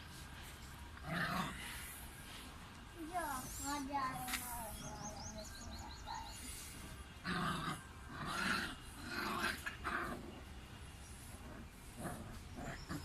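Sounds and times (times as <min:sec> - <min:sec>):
puppy growling: 0:01.0 - 0:01.7, 0:07.2 - 0:10.4, 0:11.4 - 0:13.0.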